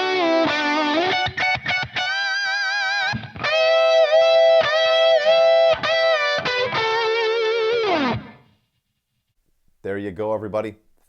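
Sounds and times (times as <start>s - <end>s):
overdriven electric guitar melody: 0.0s - 8.8s.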